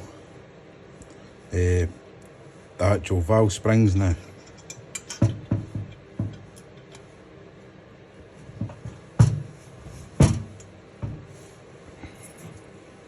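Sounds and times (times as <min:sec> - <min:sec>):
tools knocking and clunking: 0:04.4 - 0:07.0, 0:08.5 - 0:11.3.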